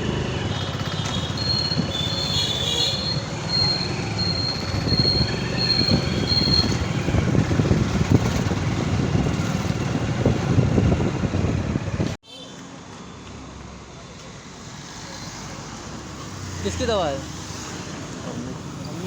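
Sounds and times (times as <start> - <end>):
wind rushing over microphone: 4.6 - 12.2.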